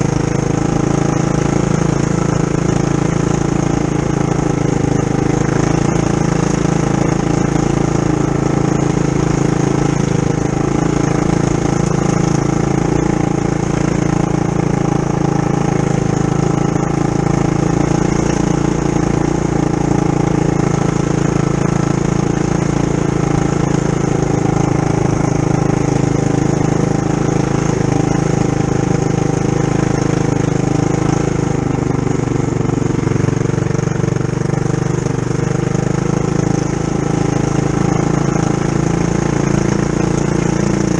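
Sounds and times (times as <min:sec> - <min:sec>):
mini bike engine running: 0:00.0 - 0:40.9.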